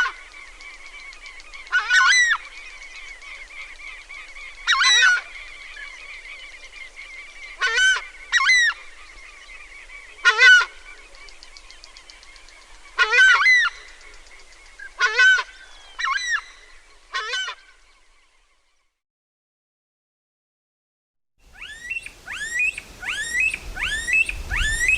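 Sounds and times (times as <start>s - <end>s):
faint wildlife chorus: 0.0s - 19.0s, 21.5s - 24.9s
large bird harsh calls: 21.5s - 24.9s.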